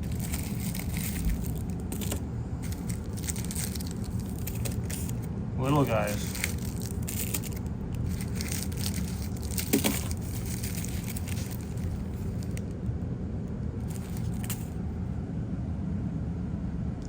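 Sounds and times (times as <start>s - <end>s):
paper wrapping crinkling and tearing: 0.0s - 12.7s, 13.8s - 14.8s
steady low hum: 0.0s - 17.0s.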